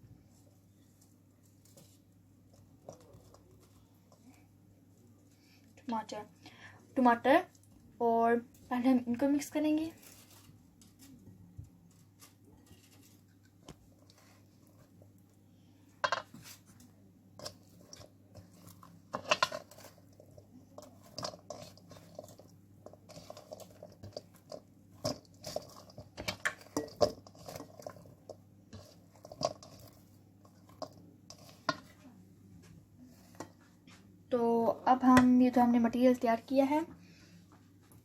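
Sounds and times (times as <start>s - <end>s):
spoon scraping a bowl: 17.4s - 32.0s
vegetables crunching: 17.4s - 32.0s.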